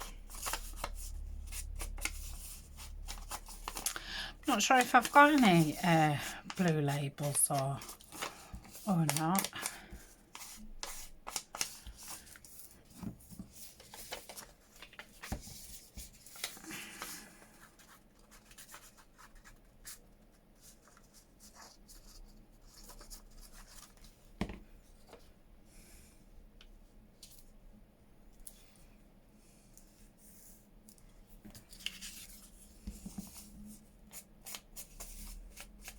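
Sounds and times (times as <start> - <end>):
paper rustling: 0.0 - 20.0, 31.5 - 35.9.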